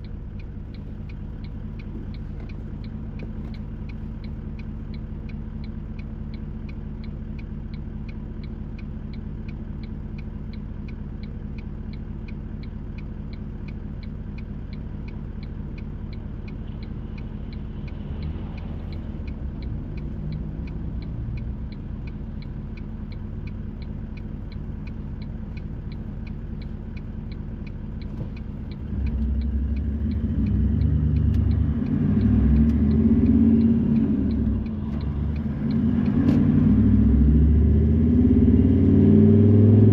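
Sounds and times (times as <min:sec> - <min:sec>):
car engine idling: 0:00.0 - 0:39.9
turn signal ticking: 0:00.0 - 0:39.9.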